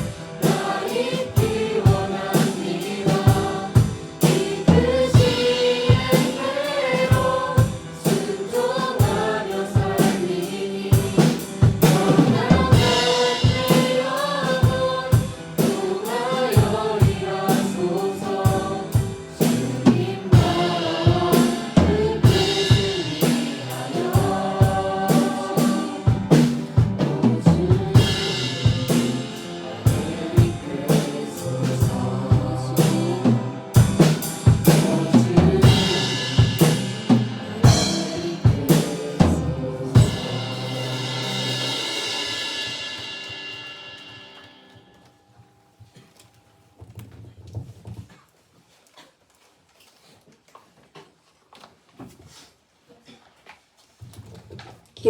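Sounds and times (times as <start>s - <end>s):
voices singing: 0.0s - 42.5s
drum kit beat: 0.0s - 44.7s
piano accompaniment: 0.0s - 44.7s.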